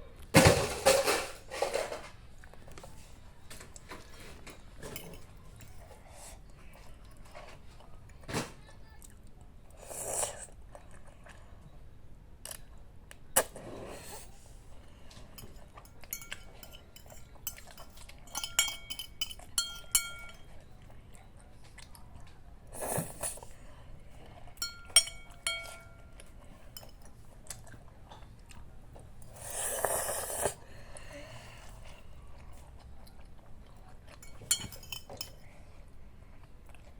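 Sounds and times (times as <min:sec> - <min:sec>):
utensil clinking against bowl: 0:04.5 - 0:05.9, 0:15.3 - 0:20.7, 0:24.6 - 0:27.2, 0:34.1 - 0:35.5.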